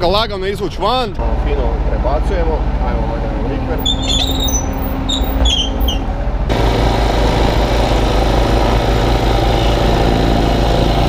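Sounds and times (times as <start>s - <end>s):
excavator diesel engine running: 1.2s - 11.0s
short high chirps: 3.8s - 6.0s.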